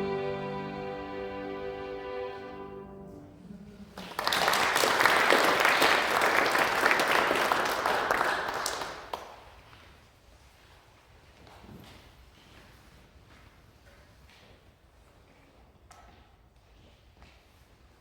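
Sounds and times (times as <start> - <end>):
violin and piano chord: 0.0 - 3.9
audience applauding: 3.9 - 9.4.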